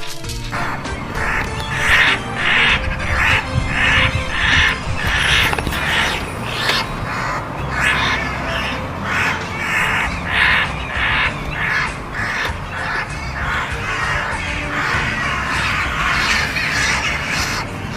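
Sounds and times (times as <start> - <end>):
crows cawing: 0.5 - 17.9.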